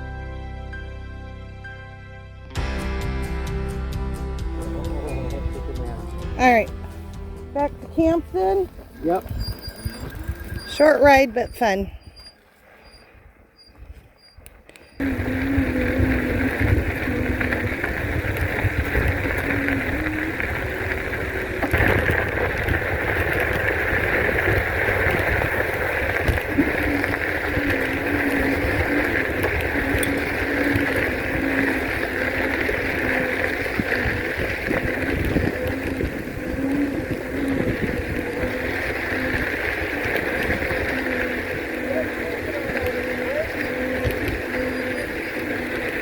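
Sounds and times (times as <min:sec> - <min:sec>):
wind rushing over microphone: 0:08.0 - 0:12.3, 0:15.0 - 0:46.0
electric motor humming: 0:14.8 - 0:46.0.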